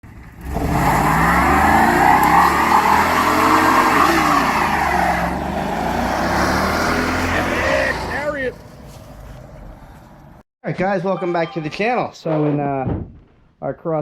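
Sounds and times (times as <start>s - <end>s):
car engine revving: 0.1s - 8.6s.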